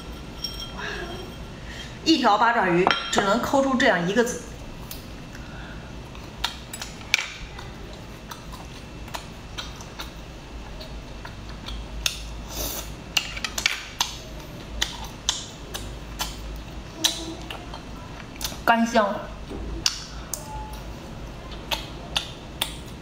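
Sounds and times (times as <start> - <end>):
utensils clinking on dishes: 0.0 - 1.5.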